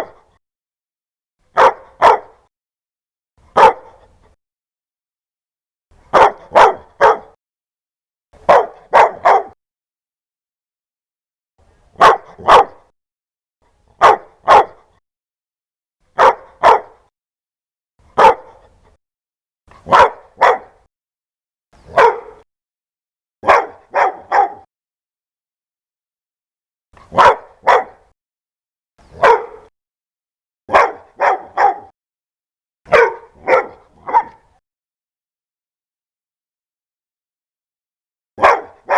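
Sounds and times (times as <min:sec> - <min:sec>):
dog barking loudly: 0:01.5 - 0:02.5, 0:03.5 - 0:04.0, 0:06.1 - 0:07.4, 0:08.4 - 0:09.6, 0:12.0 - 0:12.9, 0:14.0 - 0:15.0, 0:16.1 - 0:17.1, 0:18.2 - 0:18.7, 0:19.8 - 0:20.9, 0:21.9 - 0:22.4, 0:23.4 - 0:24.7, 0:27.1 - 0:28.1, 0:29.1 - 0:29.7, 0:30.7 - 0:31.9, 0:32.9 - 0:34.5, 0:38.4 - 0:38.9.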